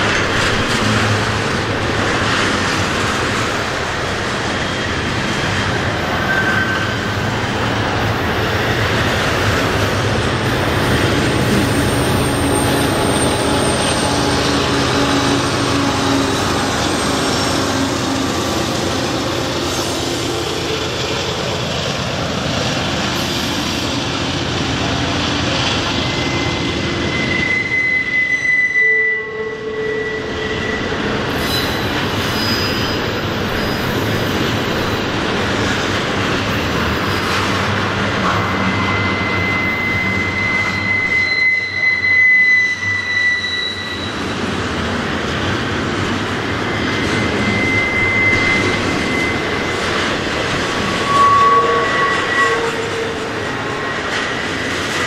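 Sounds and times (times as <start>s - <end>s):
diesel locomotives running: 0.0s - 55.0s
steel wheels rumbling on rail: 0.0s - 55.0s
high thin wheel squeal: 6.1s - 7.3s, 10.5s - 21.0s, 25.8s - 35.1s, 36.6s - 44.4s, 46.6s - 55.0s.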